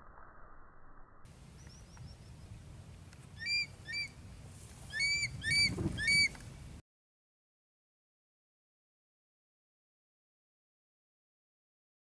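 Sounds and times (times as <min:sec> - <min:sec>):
bird calling rising notes: 0:03.4 - 0:04.2, 0:04.8 - 0:06.4.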